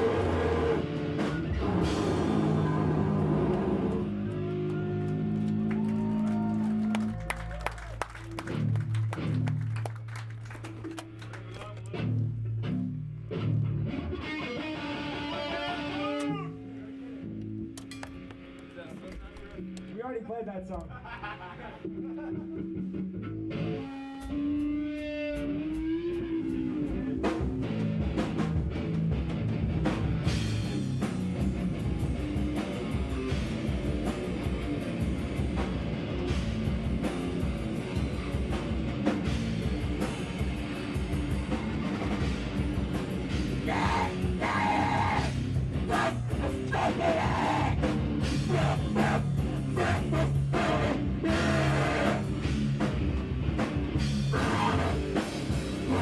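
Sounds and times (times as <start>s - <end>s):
distorted electric guitar: 0.0s - 5.7s, 11.8s - 18.6s, 21.8s - 56.0s
drum kit pounding: 0.0s - 7.1s, 24.3s - 56.0s
loud noise-rock band: 0.0s - 17.7s, 21.8s - 56.0s.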